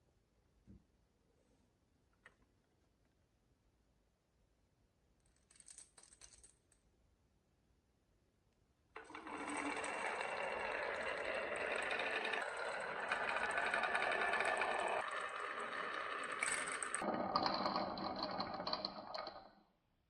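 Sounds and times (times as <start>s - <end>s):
marbles rolling on wooden track: 9.0s - 19.6s.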